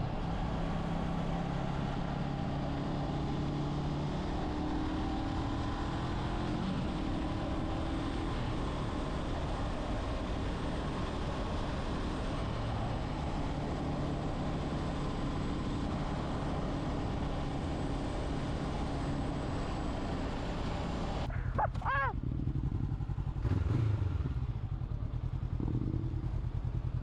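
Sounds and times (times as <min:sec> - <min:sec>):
motorcycle engine running: 0:21.3 - 0:27.0.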